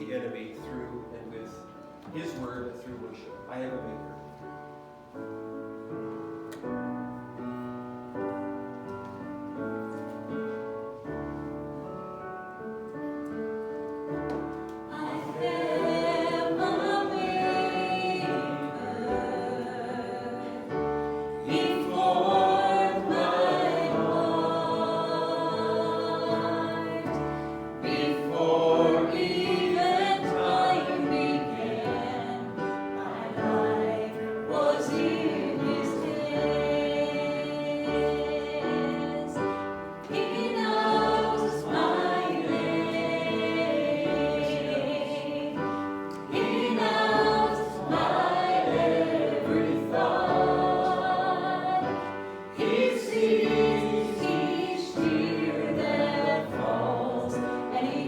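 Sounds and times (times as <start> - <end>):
group of voices singing: 14.9 - 58.0.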